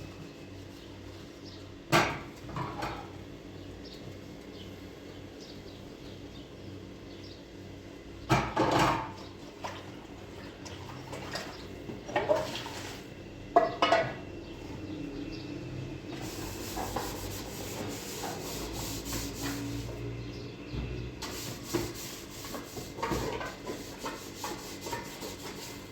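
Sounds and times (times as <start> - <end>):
dishes clattering and clinking: 8.3 - 9.2, 11.2 - 12.8, 13.6 - 14.2.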